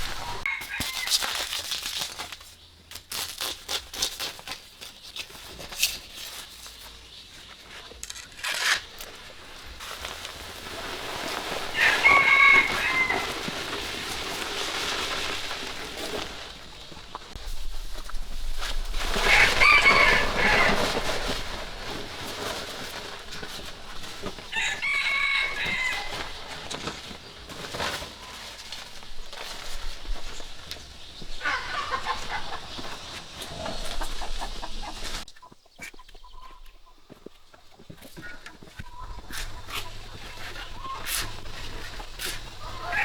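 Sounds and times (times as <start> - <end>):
rooster crowing: 0.0 - 1.2, 11.7 - 13.8, 19.2 - 21.2, 24.5 - 26.5, 42.6 - 43.0.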